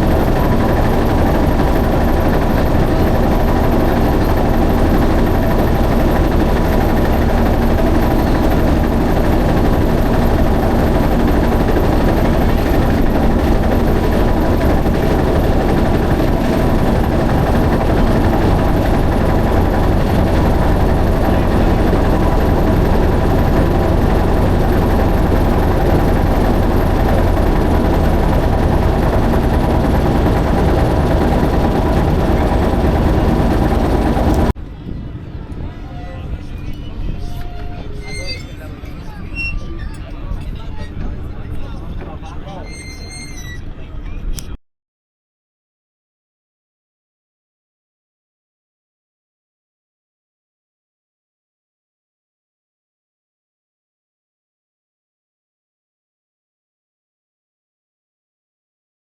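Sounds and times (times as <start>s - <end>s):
boat engine running: 0.0s - 34.6s, 36.0s - 43.5s.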